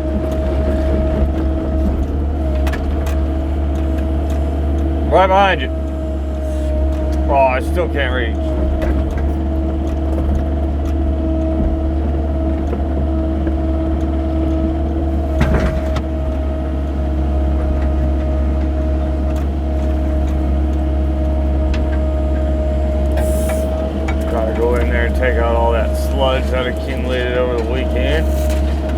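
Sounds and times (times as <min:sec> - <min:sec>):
excavator diesel engine running: 0:00.0 - 0:28.9
steady whine: 0:15.0 - 0:28.9
metal clunk: 0:15.2 - 0:28.9.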